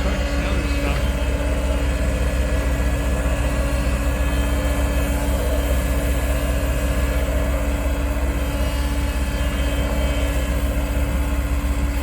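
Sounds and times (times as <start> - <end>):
diesel engine rumbling: 0.0 - 12.0
steady hum: 0.0 - 12.0.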